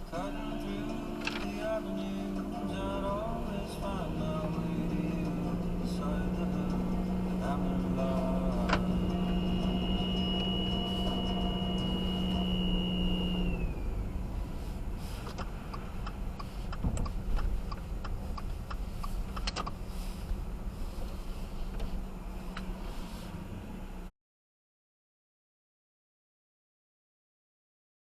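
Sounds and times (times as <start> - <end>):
low car rumble: 0.0 - 24.1
high-pitched whining squeal: 0.2 - 16.6
light regular clicks: 15.2 - 19.8.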